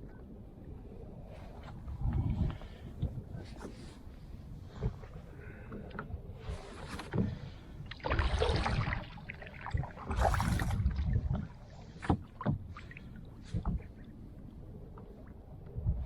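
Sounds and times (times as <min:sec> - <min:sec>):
paddle splashing water: 0:06.4 - 0:14.1.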